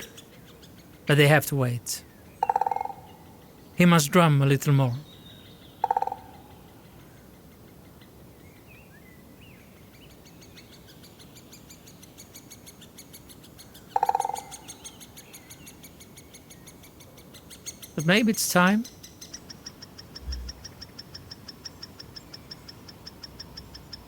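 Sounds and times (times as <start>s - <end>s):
woodpecker drumming on wood: 2.4s - 3.5s, 5.8s - 6.7s, 13.8s - 15.1s
nestlings begging calls: 17.7s - 18.9s
faint chirps: 19.7s - 24.0s.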